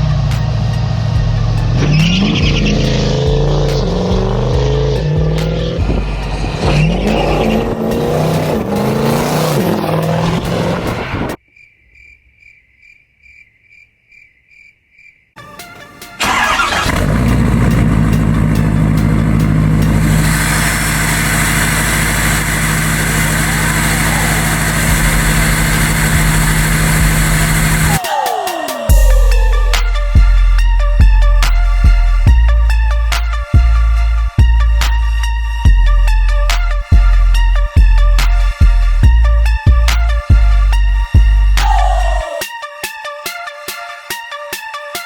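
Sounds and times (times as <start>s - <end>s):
diesel truck engine revving: 0.0s - 11.4s, 15.8s - 28.0s, 28.9s - 42.4s
loud steady engine-like sound: 16.3s - 28.0s.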